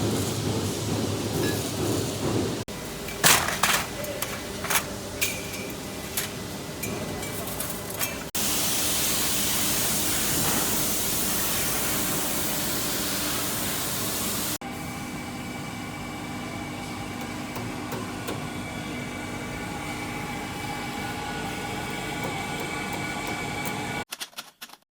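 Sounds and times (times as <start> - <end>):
loud steady hiss: 8.4 - 14.6
machine hum with whining tones: 9.4 - 24.0.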